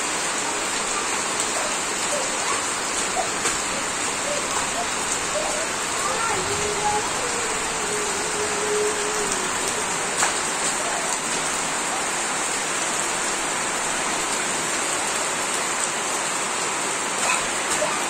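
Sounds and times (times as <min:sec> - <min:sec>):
rain on leaves and tiles: 0:00.0 - 0:18.0.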